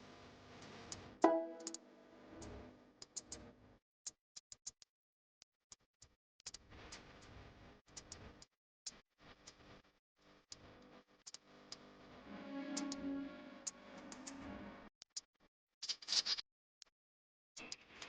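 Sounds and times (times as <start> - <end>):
plucked note: 1.2 - 1.8, 12.3 - 14.8.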